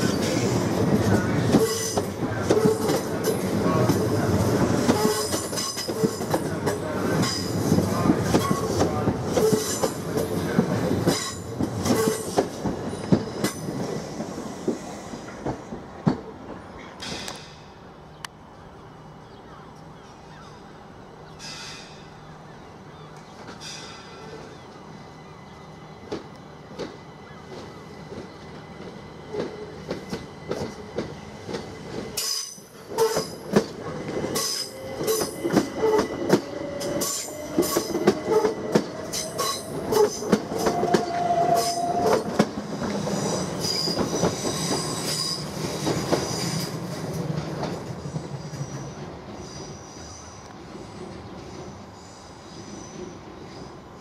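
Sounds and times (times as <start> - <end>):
train wheels clicking over rail joints: 0.0 - 17.8, 26.0 - 49.8
electric train whine: 0.0 - 54.0.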